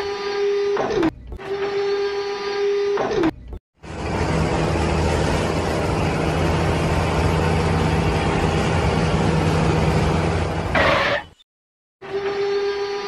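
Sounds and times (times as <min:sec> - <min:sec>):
tractor engine running: 0:03.8 - 0:11.0.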